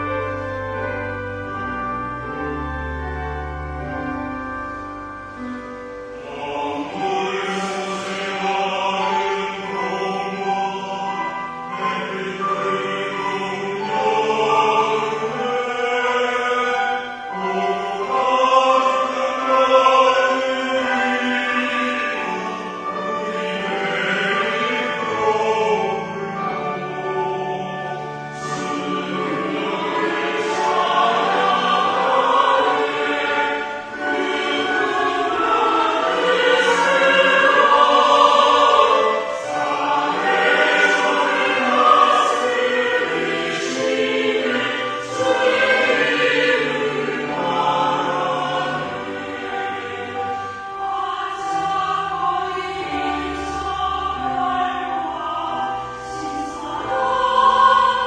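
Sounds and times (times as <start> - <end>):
choir singing a hymn: 0.0 - 58.0
low held accompaniment notes: 0.0 - 58.0.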